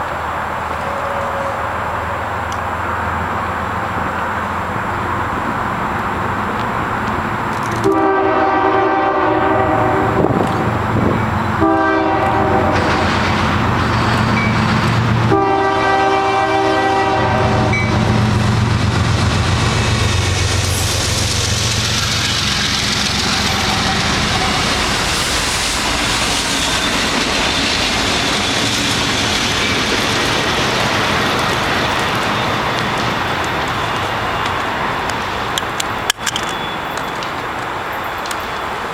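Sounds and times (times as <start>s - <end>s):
diesel locomotives rumbling: 0.0s - 38.9s
wheel and rail noise: 0.0s - 38.9s
locomotive air horn blasts: 0.8s - 2.3s, 7.8s - 10.4s, 11.6s - 13.0s, 15.2s - 18.5s.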